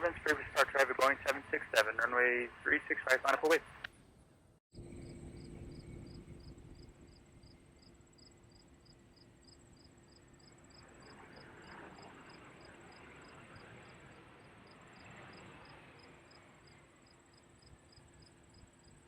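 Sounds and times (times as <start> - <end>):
distant aircraft engines rumbling: 0.0 - 3.9, 4.8 - 19.0
insects chirping: 4.8 - 12.7.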